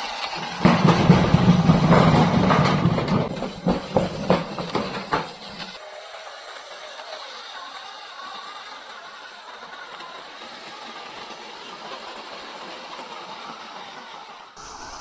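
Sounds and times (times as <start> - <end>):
motor humming and knocking: 0.0 - 5.8, 14.6 - 15.0
faint hiss: 3.4 - 15.0.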